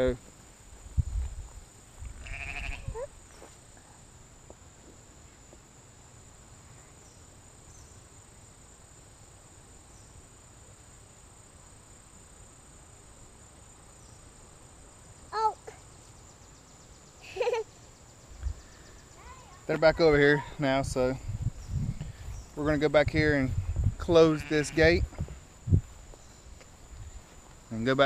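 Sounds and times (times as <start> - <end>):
high-pitched insect hum: 0.0 - 28.0
sheep bleating: 2.2 - 3.0, 24.2 - 24.9.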